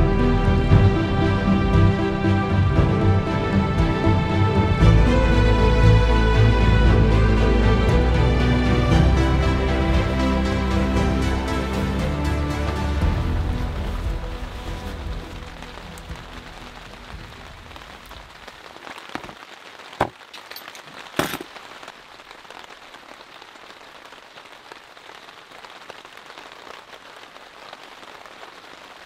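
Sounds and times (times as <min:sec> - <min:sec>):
music: 0:00.0 - 0:18.3
rain on tent fabric: 0:00.0 - 0:29.0.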